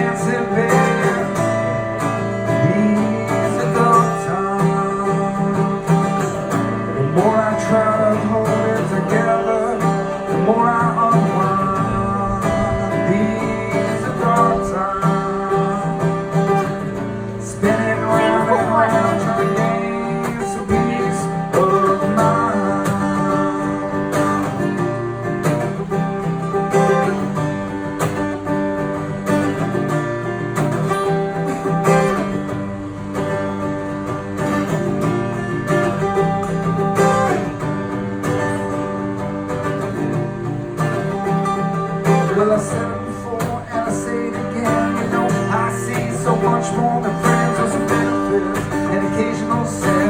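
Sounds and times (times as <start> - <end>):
wordless singing: 0.0 - 24.1, 41.8 - 50.0
acoustic guitar strumming: 0.0 - 50.0.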